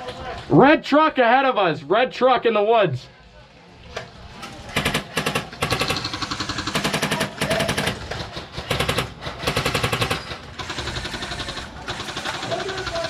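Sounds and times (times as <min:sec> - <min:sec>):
airsoft gun firing bursts: 0:04.7 - 0:13.0.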